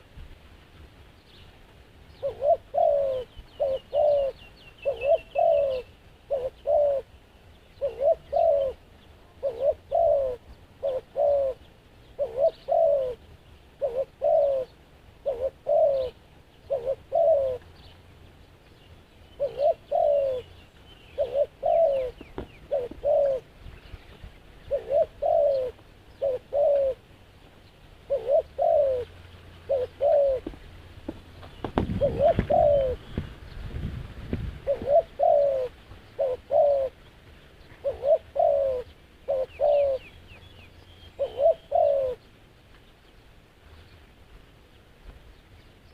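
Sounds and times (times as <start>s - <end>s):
doves cooing: 2.2s - 7.2s, 7.8s - 18.1s, 19.4s - 23.6s, 24.4s - 27.1s, 28.0s - 33.5s, 34.5s - 42.3s.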